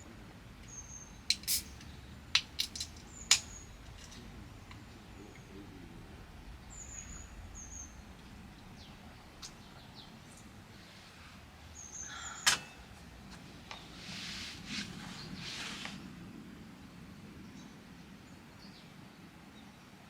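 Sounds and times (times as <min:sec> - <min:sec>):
birds chirping: 0:00.0 - 0:14.0
soft rustle: 0:13.3 - 0:16.2.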